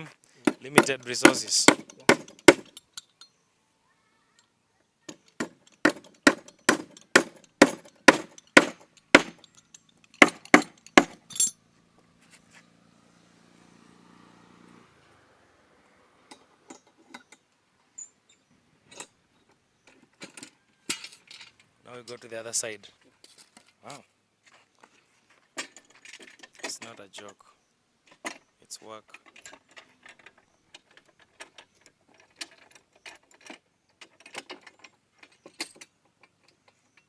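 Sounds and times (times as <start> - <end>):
hammer driving nails into wood: 0.4 - 2.8, 5.1 - 9.4, 10.2 - 11.3.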